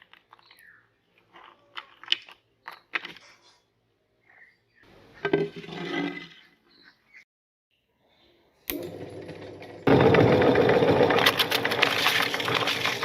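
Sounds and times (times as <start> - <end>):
electric meat grinder running: 8.7 - 13.0
grinder crunching cookies: 8.7 - 13.0.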